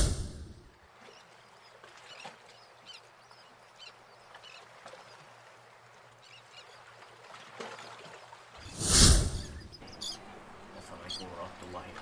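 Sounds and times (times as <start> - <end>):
faint bird chirps: 9.3 - 11.5.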